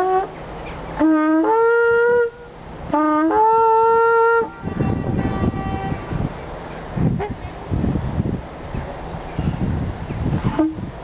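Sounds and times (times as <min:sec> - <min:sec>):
horn blasts rising in pitch: 0:01.0 - 0:06.2
rough rumbling noise: 0:02.4 - 0:11.0.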